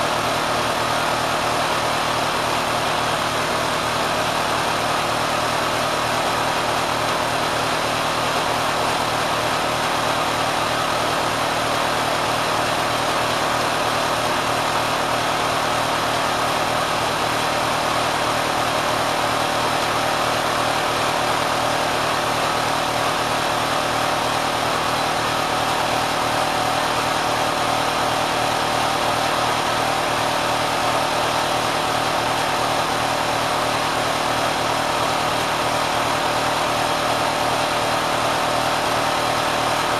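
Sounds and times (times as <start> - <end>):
sewing machine whirring loudly: 0.0 - 39.9.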